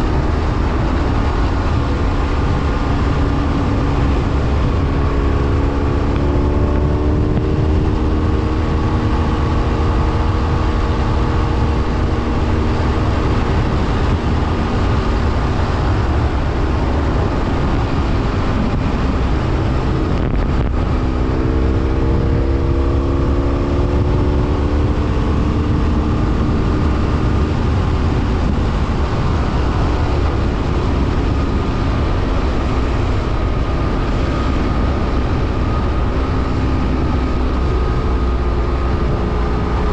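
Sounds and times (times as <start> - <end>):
motorcycle engine: 0.0 - 39.9
wind rumble on microphone: 0.0 - 39.9.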